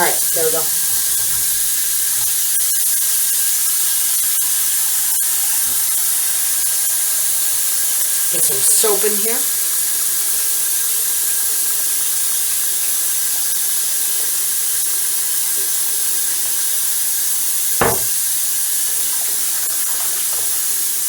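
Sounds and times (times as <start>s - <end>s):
faucet water running into sink: 0.0s - 21.0s
sharp knock: 17.8s - 18.2s.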